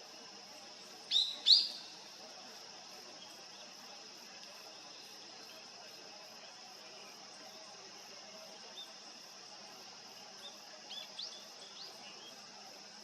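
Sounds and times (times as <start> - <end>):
faint high background hiss: 0.0 - 13.0
bird high calls: 1.1 - 1.9.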